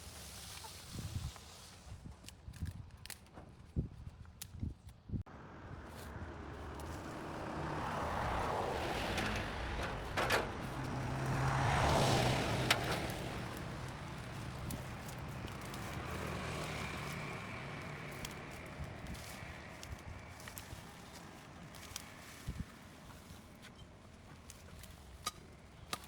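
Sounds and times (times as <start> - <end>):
vehicle passing close by: 5.3 - 22.8
low engine hum: 5.3 - 25.9.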